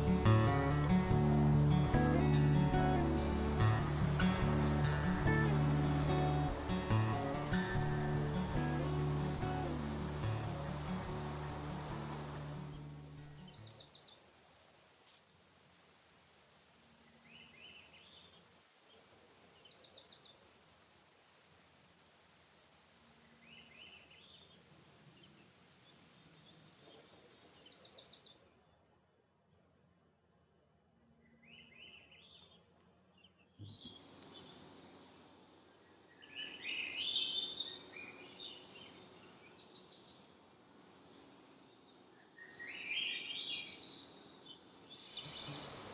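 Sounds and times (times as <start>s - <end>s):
birds chirping and singing: 12.6s - 14.2s, 26.5s - 28.4s.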